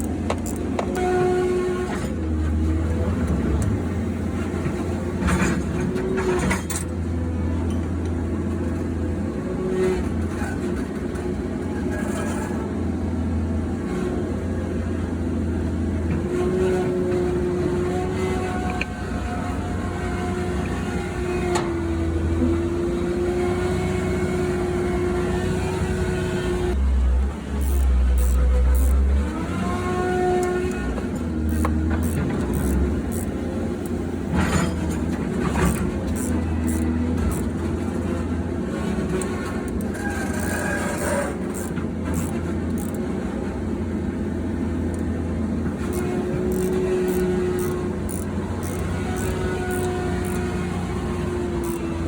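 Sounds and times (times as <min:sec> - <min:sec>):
turbocharger whine: 0:24.2 - 0:38.2, 0:45.6 - 0:52.0.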